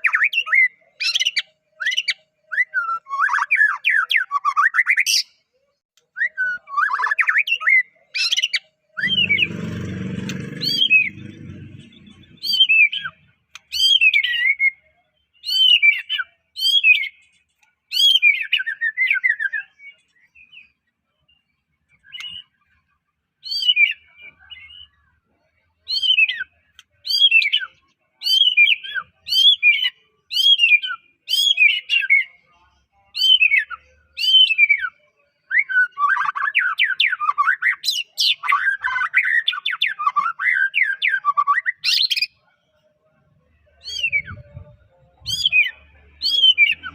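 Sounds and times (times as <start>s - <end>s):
bird singing whistled phrases: 0.0s - 5.2s, 6.1s - 9.2s, 12.4s - 17.2s, 33.2s - 42.3s, 43.8s - 44.6s, 45.3s - 46.9s
low rumbling noise: 9.0s - 12.6s.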